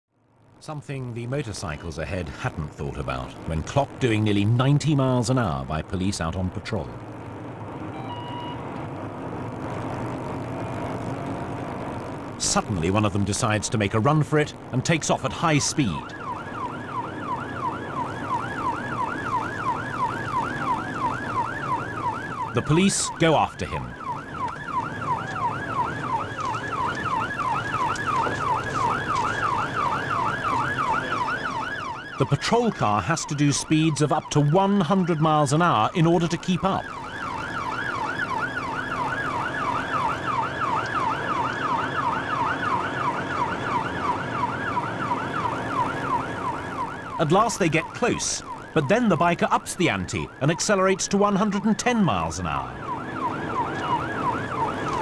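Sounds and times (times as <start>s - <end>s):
engine and road noise: 0.1s - 55.0s
faint car hum: 0.1s - 55.0s
police siren yelping: 7.1s - 55.0s.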